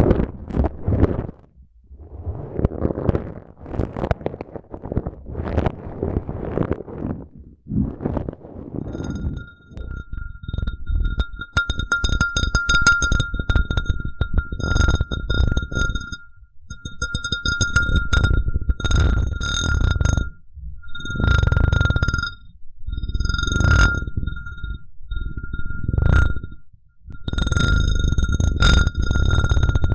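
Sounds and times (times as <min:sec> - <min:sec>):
glass scraping rub: 0:07.9 - 0:16.2, 0:16.8 - 0:22.4, 0:23.0 - 0:26.5
glass ringing high note: 0:08.9 - 0:18.4, 0:23.4 - 0:26.5.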